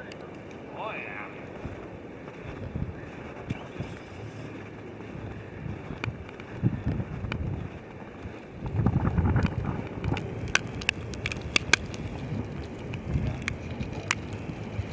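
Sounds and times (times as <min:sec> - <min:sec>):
wind buffeting microphone: 0:00.0 - 0:14.9
sharp ticks: 0:05.8 - 0:07.5, 0:08.1 - 0:14.9.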